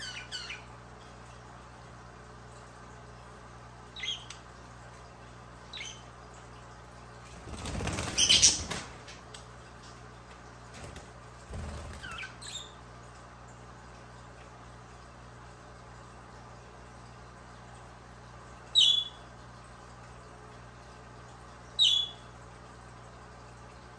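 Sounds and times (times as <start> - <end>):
wings flapping: 7.3 - 9.2, 10.7 - 12.4.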